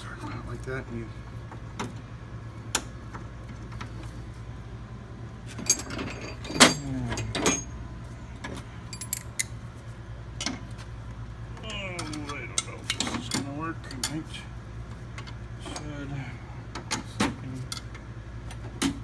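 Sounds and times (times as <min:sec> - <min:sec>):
steady low hum: 0:00.0 - 0:19.0
metal clicks and clanks of tools: 0:08.4 - 0:09.6, 0:12.0 - 0:14.2.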